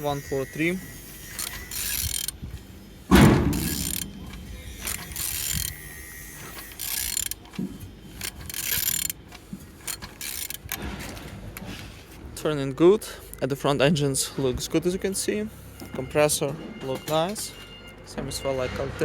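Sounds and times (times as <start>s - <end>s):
ratchet wrench clicking: 0.0s - 2.4s, 3.5s - 10.8s
loud clunk: 3.1s - 5.0s.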